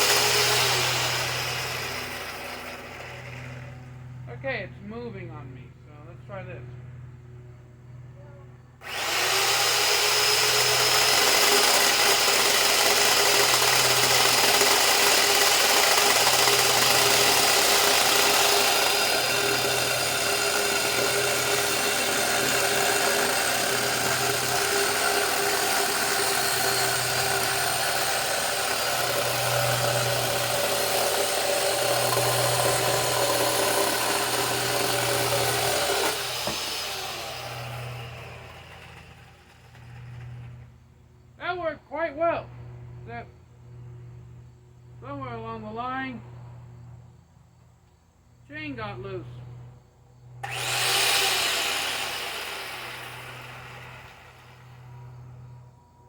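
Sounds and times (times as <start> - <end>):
electric chainsaw cutting wood: 0.0 - 4.2, 8.8 - 40.8, 50.4 - 55.7.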